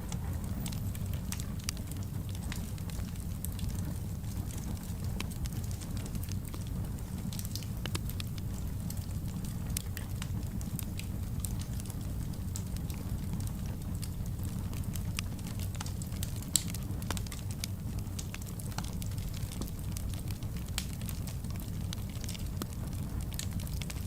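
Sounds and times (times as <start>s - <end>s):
low rumble of flames: 0.0s - 24.0s
wood fire crackling and popping: 0.0s - 24.0s.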